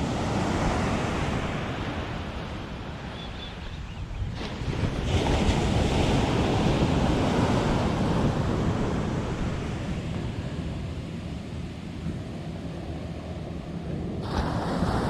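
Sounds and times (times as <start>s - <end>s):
wind rumble on microphone: 0.0s - 15.0s
surf wave breaking: 14.2s - 15.0s.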